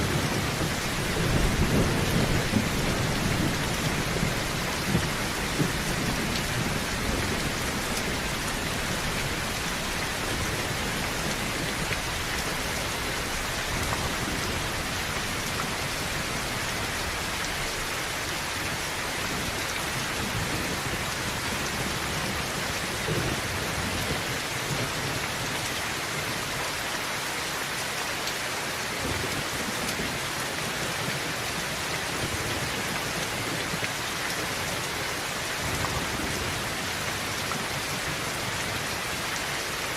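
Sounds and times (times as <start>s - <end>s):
low thunder rumbling: 0.0s - 17.9s
heavy rain on a tin roof: 0.0s - 39.9s.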